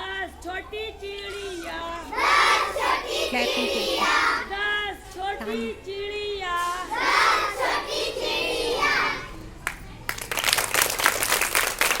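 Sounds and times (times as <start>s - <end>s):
children singing: 1.0s - 4.8s, 6.4s - 9.4s
quick hand clapping: 9.6s - 12.0s.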